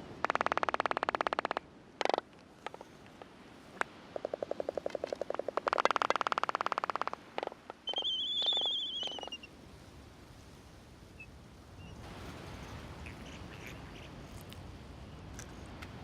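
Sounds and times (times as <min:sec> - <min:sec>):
wind or surf hiss: 0:00.0 - 0:16.0
bird call: 0:04.6 - 0:09.5.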